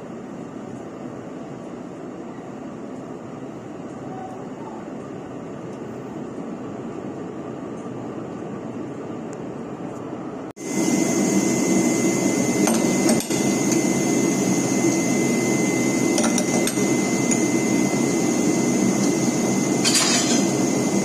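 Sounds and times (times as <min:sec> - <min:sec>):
locomotive engine humming: 0:10.6 - 0:21.0.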